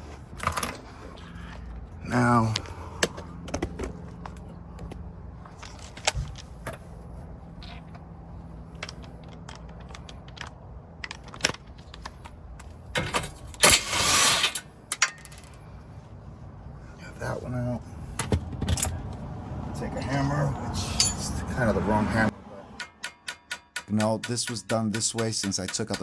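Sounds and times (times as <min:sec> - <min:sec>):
hand tools clinking on metal: 0:14.5 - 0:15.6, 0:20.8 - 0:21.5, 0:22.8 - 0:26.0.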